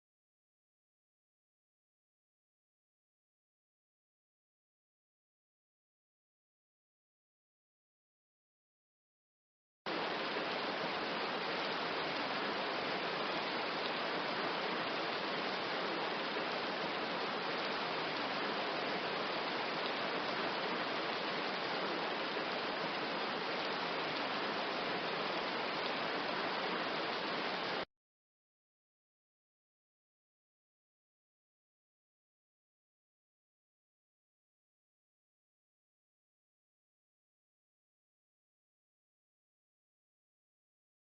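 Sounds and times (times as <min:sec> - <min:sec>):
steady rain hiss: 0:09.9 - 0:27.9.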